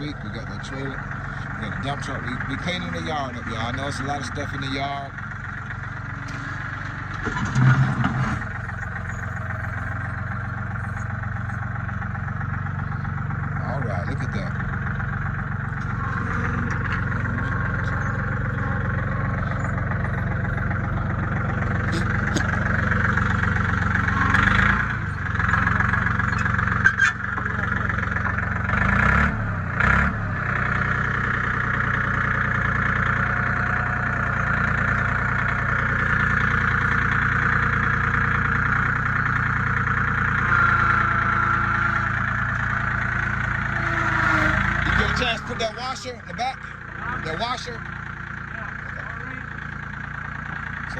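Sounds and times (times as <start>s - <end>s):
engine running: 0.0s - 50.9s.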